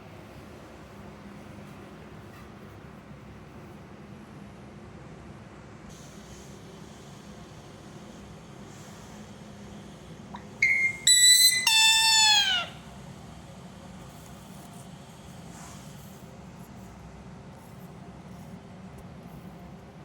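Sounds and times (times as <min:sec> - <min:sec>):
parrot calling: 0:10.4 - 0:12.8.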